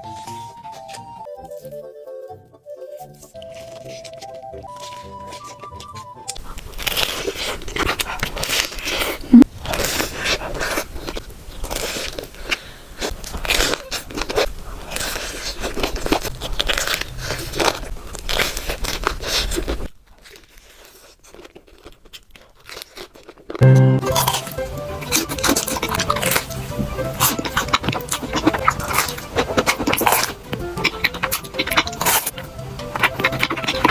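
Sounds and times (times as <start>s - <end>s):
crunchy chewing: 2.8s - 33.9s
short musical tone: 23.6s - 26.8s.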